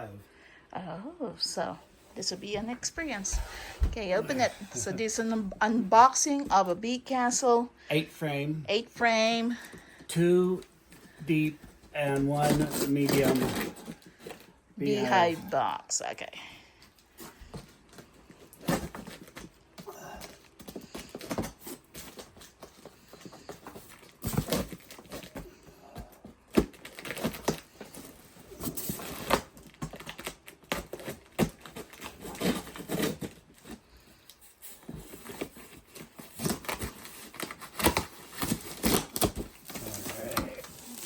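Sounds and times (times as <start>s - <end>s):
packaging crinkling and tearing: 26.4s - 41.0s.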